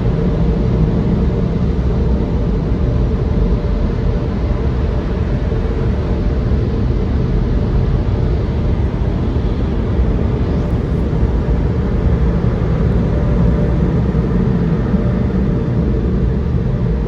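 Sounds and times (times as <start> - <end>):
car wash machinery rumbling: 10.4 - 17.0.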